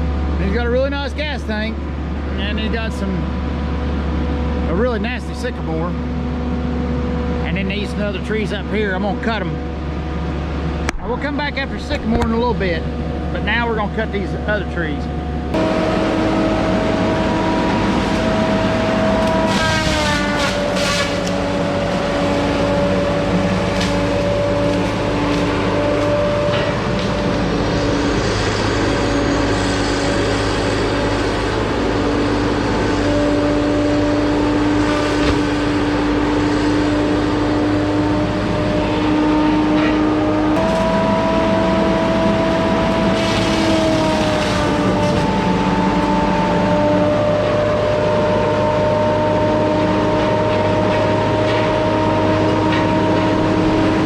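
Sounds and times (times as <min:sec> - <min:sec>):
chainsaw cutting through tree: 0:15.6 - 0:37.8, 0:40.6 - 0:48.4
sharp crackles of wood: 0:17.9 - 0:27.4, 0:42.5 - 0:46.1.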